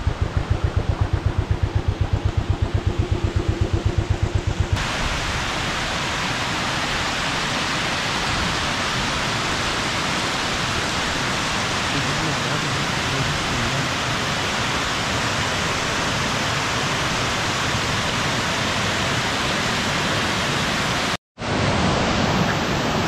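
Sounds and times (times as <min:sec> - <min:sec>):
rhythmic low pulsing: 0:00.0 - 0:04.8
waterfall rushing: 0:04.8 - 0:23.0.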